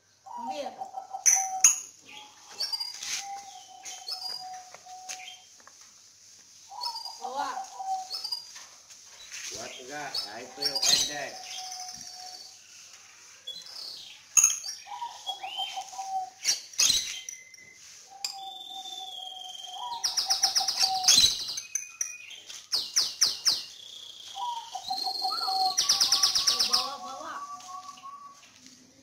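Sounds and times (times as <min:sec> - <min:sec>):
small birds chirping and trilling: 0:00.0 - 0:29.0.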